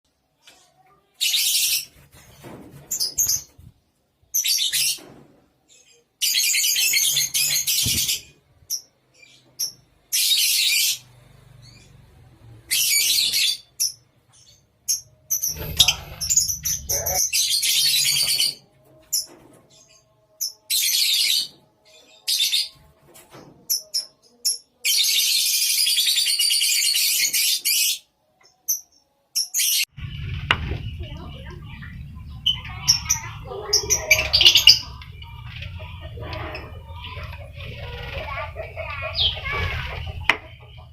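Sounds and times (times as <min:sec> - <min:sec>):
lovebirds chattering shrilly: 0:12.7 - 0:19.9, 0:29.6 - 0:40.9
low rumble: 0:29.9 - 0:40.9.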